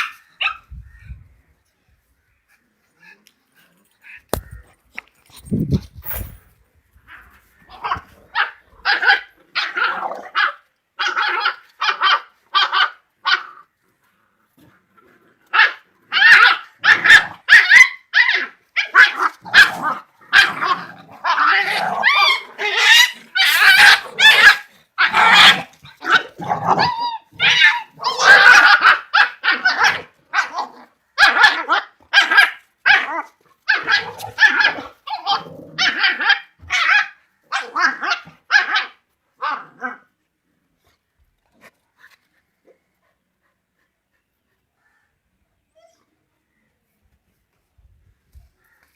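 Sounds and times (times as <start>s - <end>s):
dogs barking: 18.8s - 30.6s.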